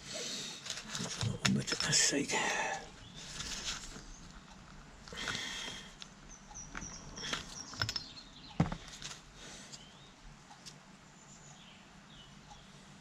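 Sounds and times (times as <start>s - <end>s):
metal parts clicking and knocking: 6.7s - 9.2s.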